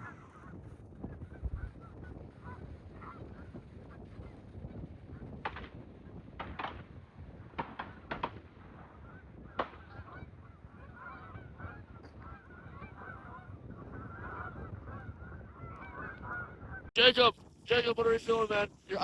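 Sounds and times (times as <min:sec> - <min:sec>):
geese honking: 0:00.0 - 0:04.0, 0:08.6 - 0:18.7
wind rumble on microphone: 0:00.0 - 0:19.0
sharp crack: 0:05.4 - 0:05.8, 0:06.4 - 0:06.9, 0:07.5 - 0:08.4, 0:09.6 - 0:10.0.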